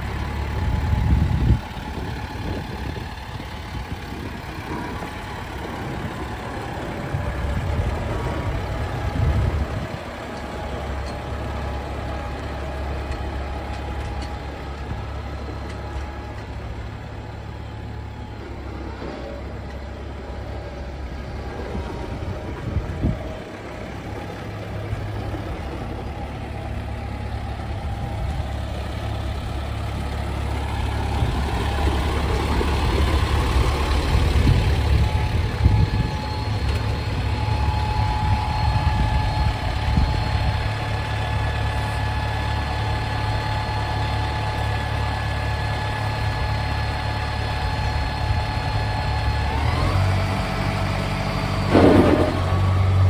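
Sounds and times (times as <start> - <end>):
tractor diesel engine running: 0.0 - 53.0
thin steady whine: 30.0 - 49.5.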